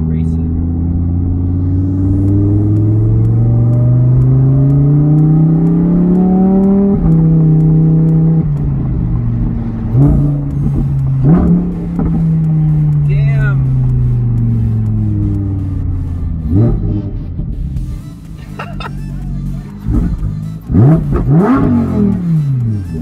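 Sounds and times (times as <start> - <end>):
car engine revving loudly: 0.0 - 17.8, 19.4 - 23.0.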